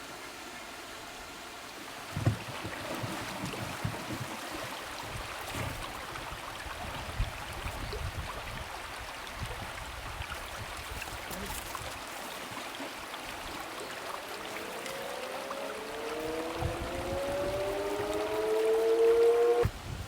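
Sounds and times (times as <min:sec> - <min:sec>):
river water rushing: 0:11.0 - 0:19.7.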